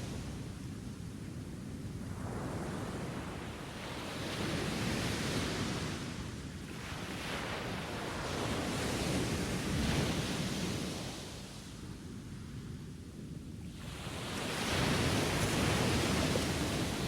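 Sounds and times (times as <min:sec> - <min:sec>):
waves washing in: 0:13.8 - 0:17.0.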